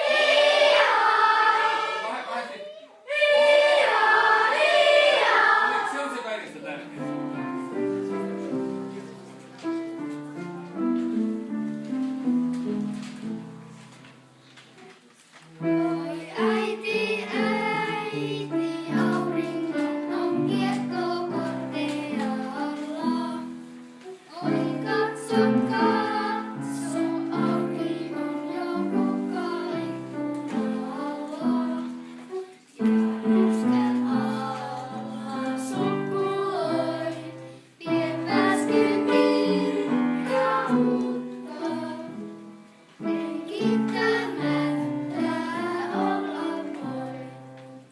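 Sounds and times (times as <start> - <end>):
children singing: 0.0 - 6.2, 15.7 - 47.8.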